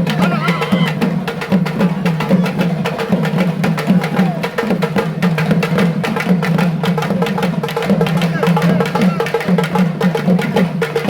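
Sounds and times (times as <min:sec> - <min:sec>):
fast percussion ensemble drumming: 0:00.0 - 0:11.0.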